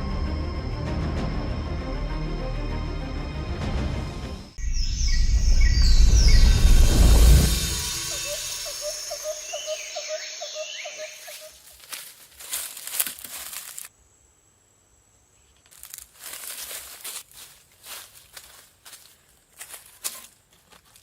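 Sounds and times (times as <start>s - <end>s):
crunching and crackling: 11.4s - 13.9s, 15.6s - 21.0s.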